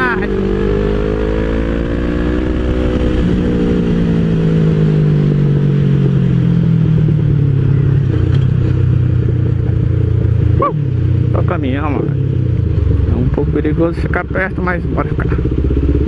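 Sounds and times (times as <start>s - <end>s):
deep steady engine note: 0.0s - 16.0s
motorcycle engine running: 0.0s - 16.0s.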